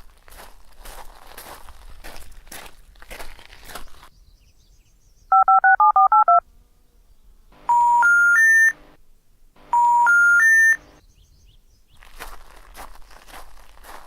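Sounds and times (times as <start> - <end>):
keypad dialing beeps: 5.3 - 6.4, 7.7 - 8.8, 9.7 - 10.8
three rising telephone tones: 5.3 - 6.4, 7.6 - 8.9, 9.7 - 10.9.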